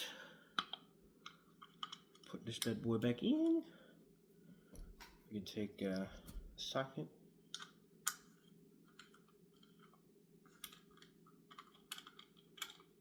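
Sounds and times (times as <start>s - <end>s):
low steady hum: 0.0s - 13.0s
small metal parts clicking: 10.6s - 13.0s.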